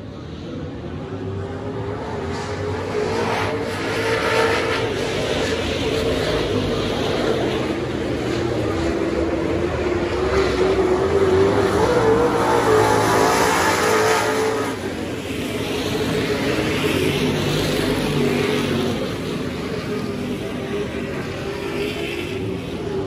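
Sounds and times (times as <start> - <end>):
race car engines passing: 0.0 - 23.0.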